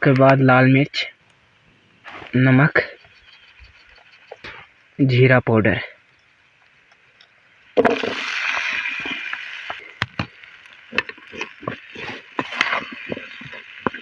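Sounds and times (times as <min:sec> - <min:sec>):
potatoes and onions sizzling: 0:00.4 - 0:14.0
spoon scraping against pan: 0:07.8 - 0:14.0.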